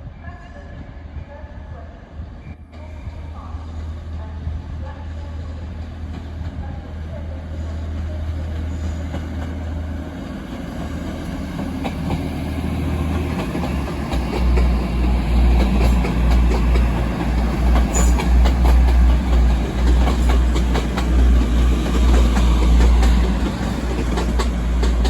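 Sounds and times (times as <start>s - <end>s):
train rumbling: 0.0s - 25.0s
wheels clicking over rail joints: 13.0s - 25.0s.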